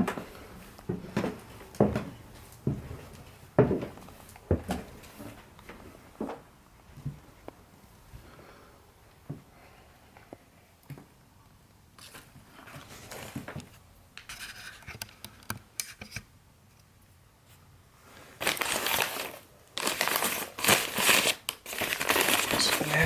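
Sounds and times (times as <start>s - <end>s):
paper rustling and crinkling: 18.2s - 23.0s.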